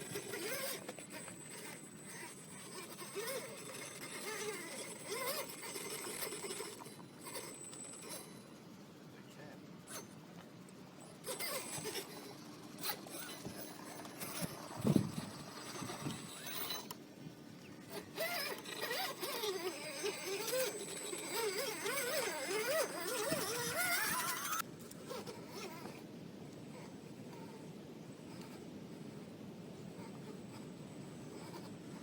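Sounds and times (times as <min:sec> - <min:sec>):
electric motor whining: 0:00.0 - 0:08.6, 0:11.0 - 0:17.0, 0:17.6 - 0:26.0.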